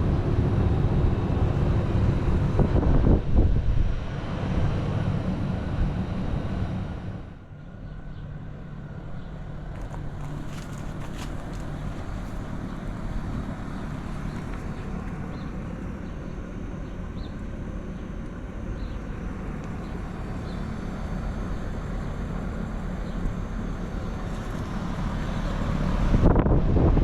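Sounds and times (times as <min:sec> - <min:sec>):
wind buffeting microphone: 0:00.0 - 0:07.4, 0:19.7 - 0:27.0
heat pump fan and compressor hum: 0:00.0 - 0:27.0.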